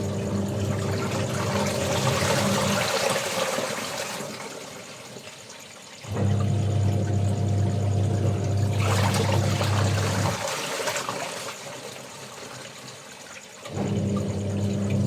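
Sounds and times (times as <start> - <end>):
electric pump humming: 0.0 - 3.0, 6.1 - 10.4, 13.7 - 15.0
water pouring and splashing: 0.0 - 7.6, 8.2 - 15.0.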